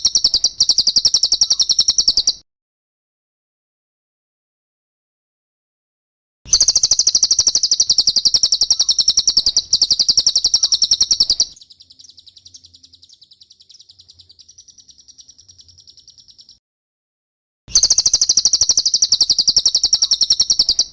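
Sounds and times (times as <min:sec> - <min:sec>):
bird trilling high chirps: 0:00.0 - 0:02.4, 0:06.5 - 0:16.6, 0:17.7 - 0:20.9.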